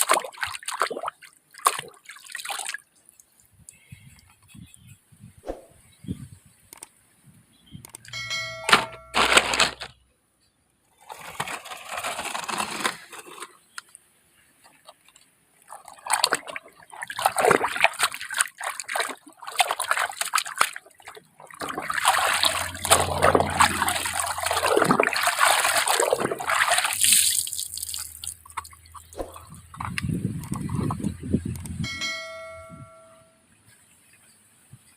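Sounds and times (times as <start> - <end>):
water sloshing and splashing: 0.0 - 2.9, 14.6 - 31.3.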